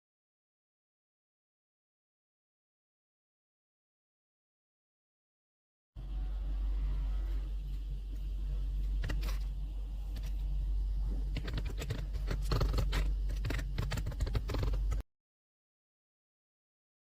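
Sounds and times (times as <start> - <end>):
steady low hum: 6.0 - 15.0
keyboard typing: 11.3 - 15.0.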